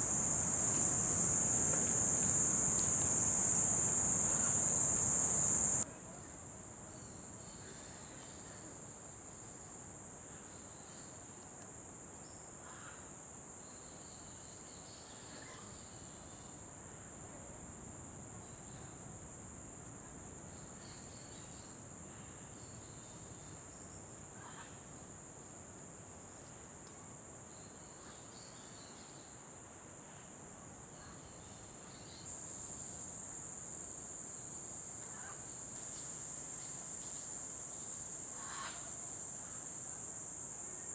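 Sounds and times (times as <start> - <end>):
high-pitched insect chorus: 0.0 - 5.9, 31.2 - 40.9.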